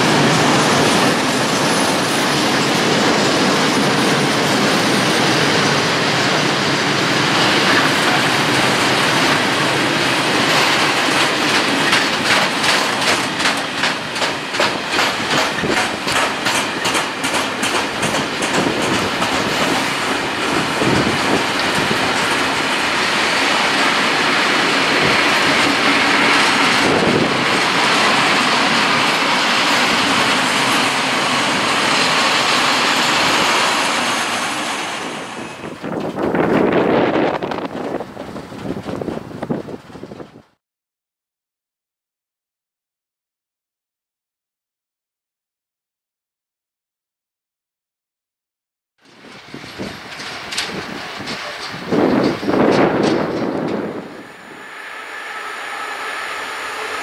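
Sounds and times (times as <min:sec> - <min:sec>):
wheel-on-rail noise: 0:00.0 - 0:40.6, 0:49.0 - 0:57.0
wheels clickety-clack: 0:07.4 - 0:23.9, 0:24.5 - 0:40.6, 0:49.0 - 0:54.0.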